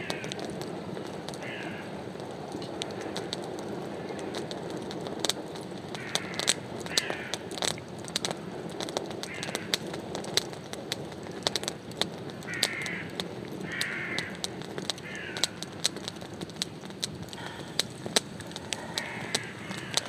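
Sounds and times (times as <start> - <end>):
crows cawing: 0.0 - 0.6, 1.3 - 2.0, 5.9 - 7.6, 9.2 - 9.8, 12.4 - 16.3, 17.3 - 20.0
sharp clicks and crackles: 0.0 - 20.0.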